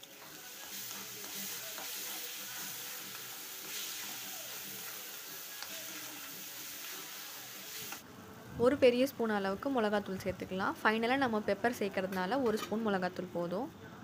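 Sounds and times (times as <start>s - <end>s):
masala sizzling in hot oil: 0.0s - 8.0s.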